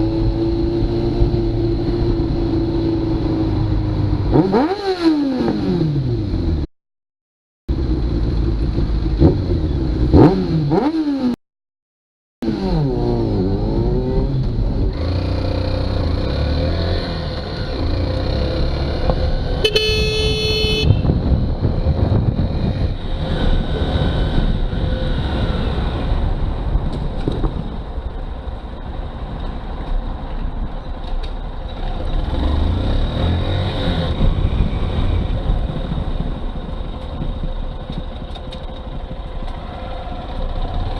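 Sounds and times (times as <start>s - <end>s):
motorcycle engine revving: 0.0s - 6.7s, 7.7s - 11.4s, 12.4s - 26.7s, 31.8s - 40.9s
traffic noise: 0.0s - 6.7s, 7.7s - 11.3s, 12.5s - 40.9s
vehicle horn: 19.6s - 21.2s.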